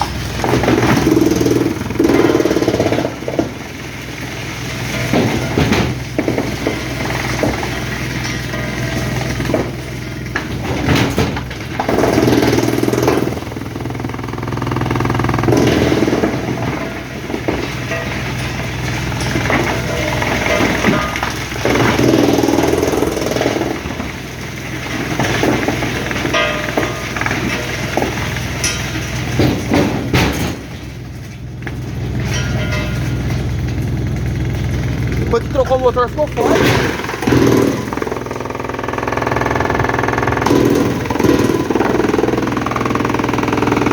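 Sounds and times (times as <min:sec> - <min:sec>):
diesel machinery humming: 0:00.0 - 0:43.9
large engine running: 0:00.0 - 0:43.9.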